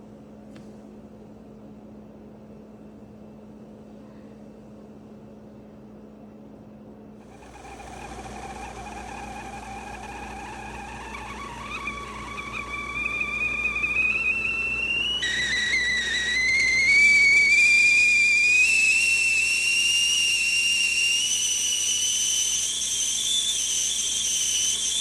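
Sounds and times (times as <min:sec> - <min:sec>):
steady low hum: 0:00.0 - 0:23.3
tea kettle whistling: 0:07.2 - 0:25.0.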